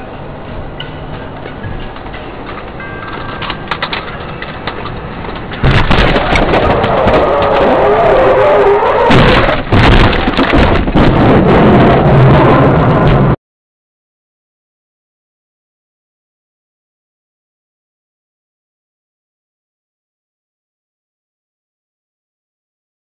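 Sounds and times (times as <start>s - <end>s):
car collision crash: 5.6s - 13.2s.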